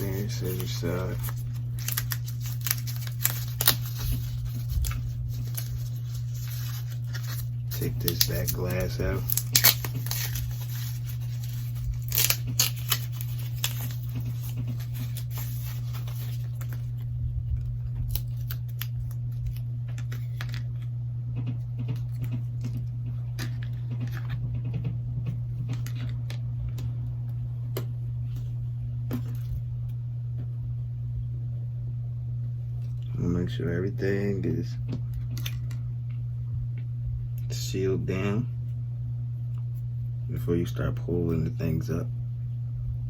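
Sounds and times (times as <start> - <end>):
plastic film crinkling and tearing: 0.0 - 20.8
low hum: 0.0 - 43.0.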